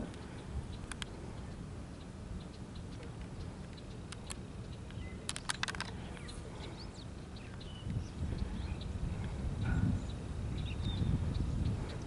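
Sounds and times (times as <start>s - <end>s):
faint bird chirps: 0.1s - 12.0s
sharp clicks: 0.8s - 1.2s, 2.5s - 6.3s.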